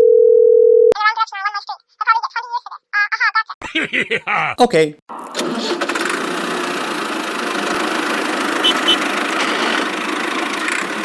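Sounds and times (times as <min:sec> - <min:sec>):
vehicle engine idling: 0:06.2 - 0:11.0
short high chirps: 0:08.6 - 0:09.0.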